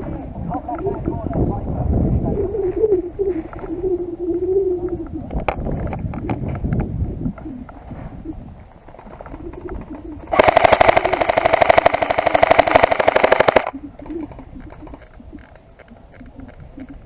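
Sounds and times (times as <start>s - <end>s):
airsoft rifle full-auto burst: 10.3s - 13.7s
faint clicks and rustling: 10.4s - 17.0s.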